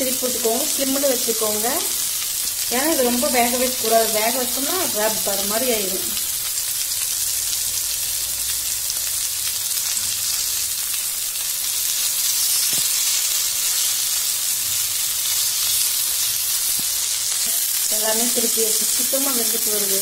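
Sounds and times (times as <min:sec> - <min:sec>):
prawns sizzling in oil: 0:00.0 - 0:20.0.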